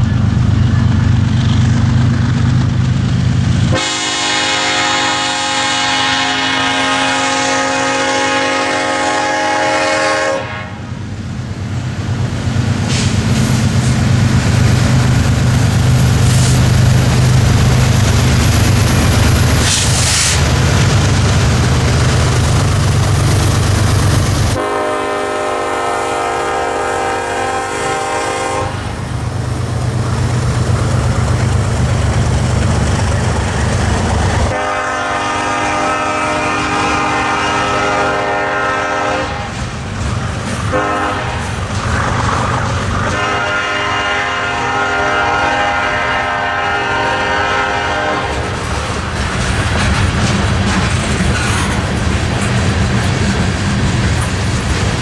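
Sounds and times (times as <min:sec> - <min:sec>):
passing train rumble: 0:00.0 - 0:55.0
locomotive air horn blasts: 0:03.7 - 0:10.9, 0:24.5 - 0:29.0, 0:34.5 - 0:39.6, 0:40.7 - 0:41.6, 0:43.0 - 0:48.5.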